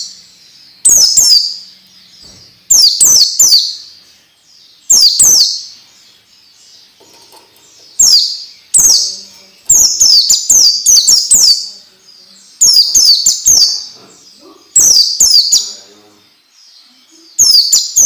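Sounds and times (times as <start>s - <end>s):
songbird chirping: 0.0s - 18.0s.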